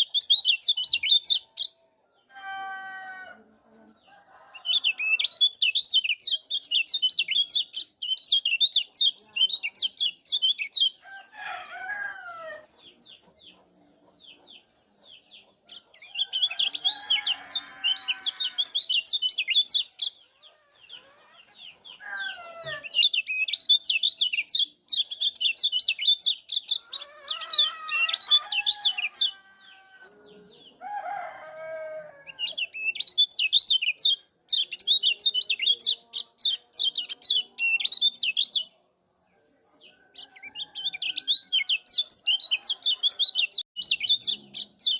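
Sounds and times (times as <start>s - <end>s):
high bird chirps: 0.0s - 1.8s, 32.3s - 38.7s, 40.0s - 44.9s.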